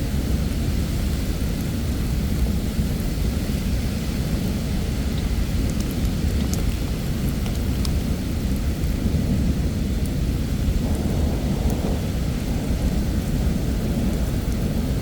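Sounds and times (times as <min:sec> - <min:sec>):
heavy rain falling: 0:00.0 - 0:15.0
deep rumble: 0:09.0 - 0:15.0.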